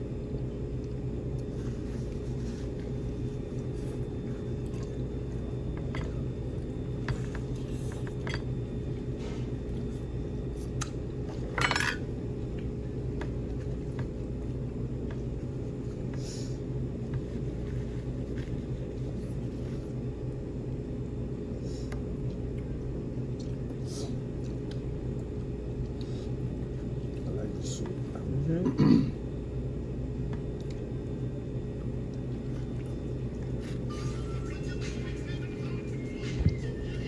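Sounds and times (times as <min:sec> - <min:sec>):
low room hum: 0:00.0 - 0:37.0
dishes and cutlery clinking: 0:11.4 - 0:12.1.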